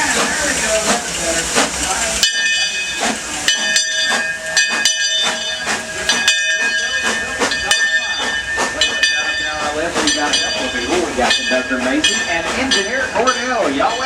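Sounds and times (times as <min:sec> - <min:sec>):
steam hissing: 0:00.0 - 0:14.0.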